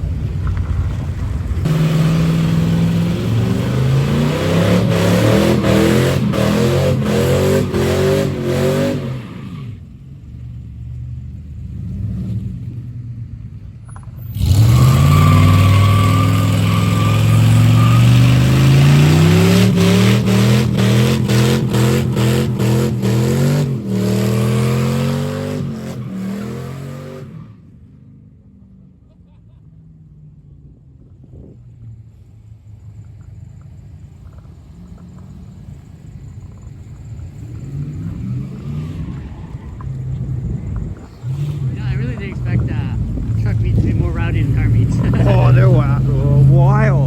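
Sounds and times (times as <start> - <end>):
tire squeal: 1.7 - 9.8, 13.8 - 27.8, 32.1 - 47.0
truck engine revving hard: 1.7 - 9.8, 14.2 - 27.5, 40.0 - 47.0.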